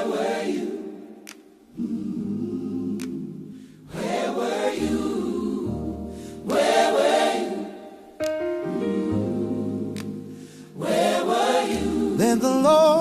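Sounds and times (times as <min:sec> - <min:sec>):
gospel choir singing: 0:00.0 - 0:13.0
instrumental accompaniment: 0:08.2 - 0:12.2.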